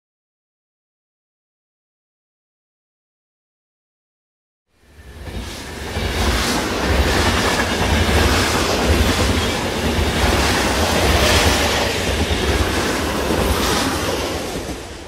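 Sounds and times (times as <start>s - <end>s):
train rumbling on rails: 4.7s - 15.0s.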